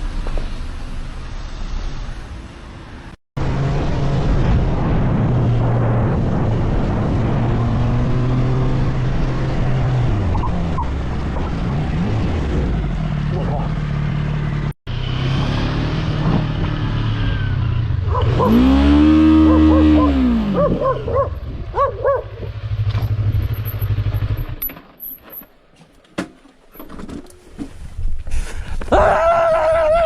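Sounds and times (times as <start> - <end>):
vehicle engine running: 12.8 - 24.6.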